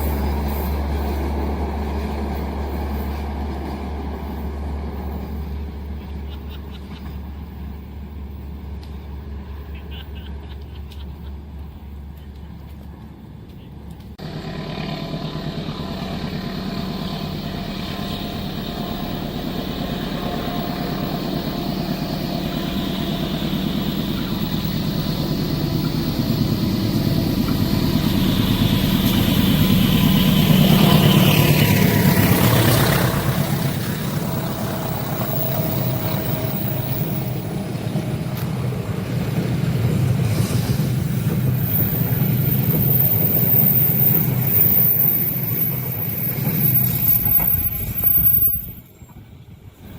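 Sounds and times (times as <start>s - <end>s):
vehicle engine running: 14.0s - 40.6s.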